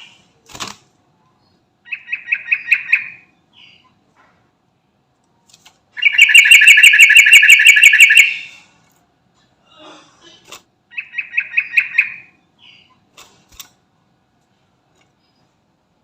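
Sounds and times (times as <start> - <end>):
soft bird chirps: 1.2 - 4.1, 10.9 - 13.2, 15.1 - 15.6
bird song rapid repeated notes: 1.9 - 3.9, 6.0 - 8.5, 10.9 - 13.0.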